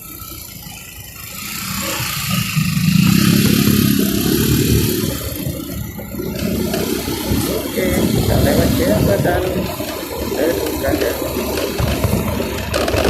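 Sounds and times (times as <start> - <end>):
motorbike engine running: 0.0 - 13.0.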